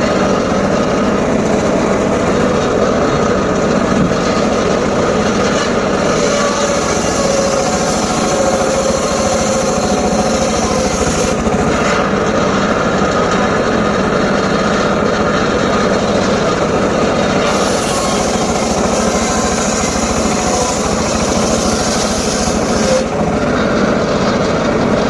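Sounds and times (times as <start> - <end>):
circular sawmill running: 0.0 - 25.0.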